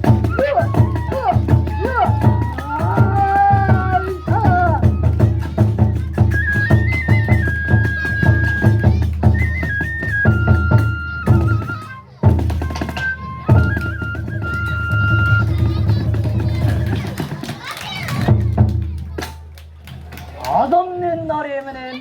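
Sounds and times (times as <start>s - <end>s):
bamboo flute melody: 0.0s - 17.0s
taiko drums beating: 0.0s - 20.4s.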